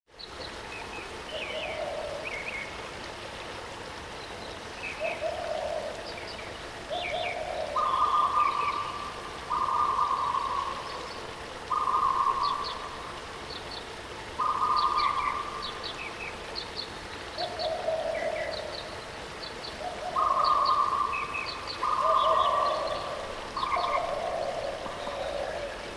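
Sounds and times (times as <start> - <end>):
waterfall rushing: 1.2 - 25.9
birds chirping: 4.9 - 25.9
flat lower bird call: 7.0 - 13.1, 14.4 - 15.9.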